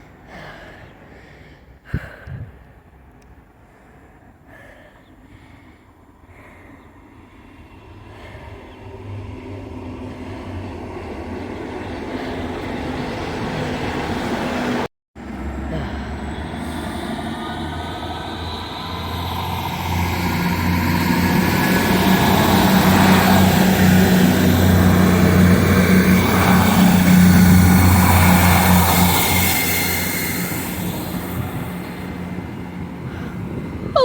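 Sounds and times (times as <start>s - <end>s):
diesel train engine humming: 2.9s - 34.0s
high-pitched whine: 15.2s - 33.0s.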